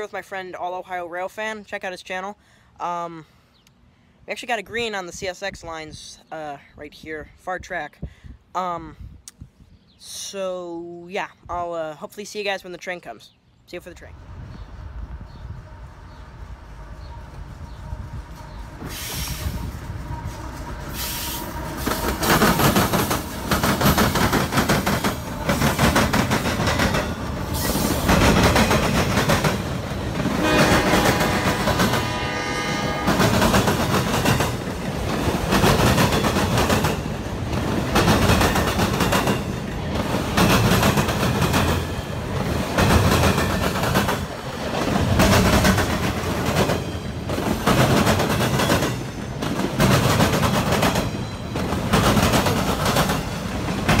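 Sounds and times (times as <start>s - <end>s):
freight train wheels clacking: 17.0s - 54.0s.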